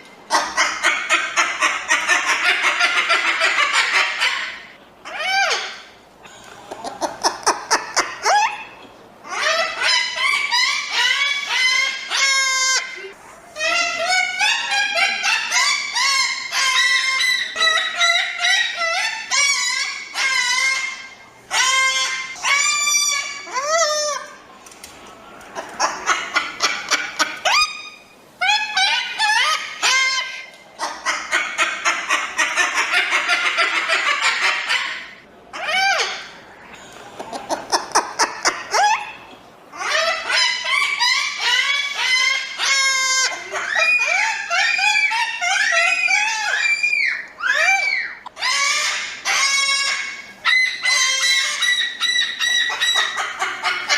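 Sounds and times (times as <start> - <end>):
cockatoos squawking: 0.3 - 24.4, 25.5 - 53.9
cockatoos screeching: 37.4 - 53.9.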